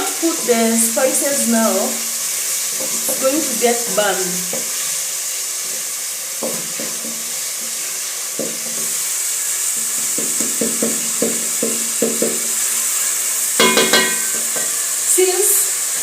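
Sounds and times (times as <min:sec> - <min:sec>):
onions sizzling in a pot: 0:00.0 - 0:16.0
spoon knocking against a pot: 0:10.1 - 0:12.5, 0:13.6 - 0:14.7.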